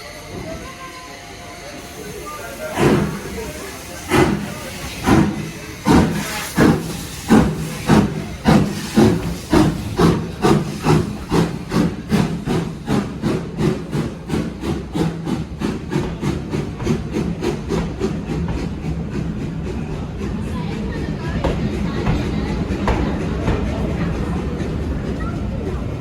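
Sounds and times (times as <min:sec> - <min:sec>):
hiss of steam: 0:00.0 - 0:19.6
steam locomotive exhaust chuffs: 0:00.0 - 0:26.0.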